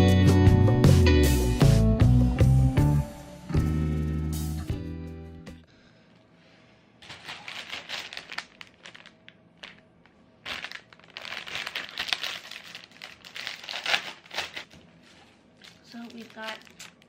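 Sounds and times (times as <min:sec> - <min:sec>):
guitar music: 0:00.0 - 0:05.6
packaging crinkling: 0:07.0 - 0:17.0.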